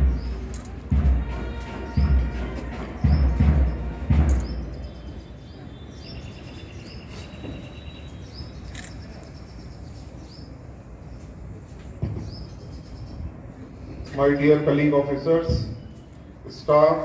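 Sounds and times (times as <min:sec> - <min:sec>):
heavy low thumps: 0:00.0 - 0:05.1
birds chirping: 0:00.0 - 0:17.0
outdoor background noise: 0:00.0 - 0:17.0.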